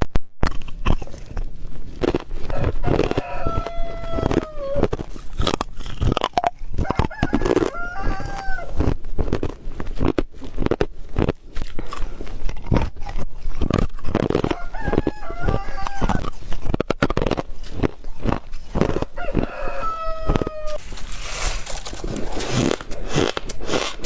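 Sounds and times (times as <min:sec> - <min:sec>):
ice being bitten and crunched: 0:00.0 - 0:24.0
rooster crowing: 0:02.5 - 0:04.9, 0:06.8 - 0:08.8, 0:14.4 - 0:16.3, 0:19.2 - 0:20.9.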